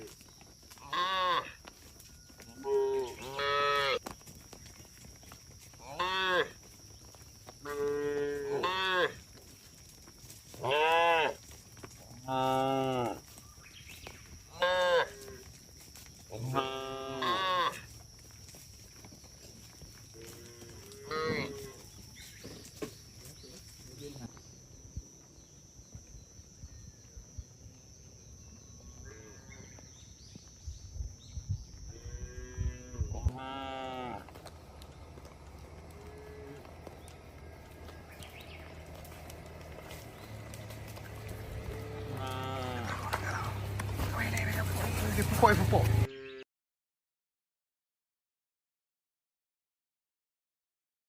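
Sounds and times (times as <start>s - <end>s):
cattle mooing: 2.5s - 4.0s, 7.6s - 9.2s, 16.4s - 17.8s, 20.2s - 21.8s, 32.0s - 34.4s, 35.8s - 37.0s, 41.0s - 46.4s.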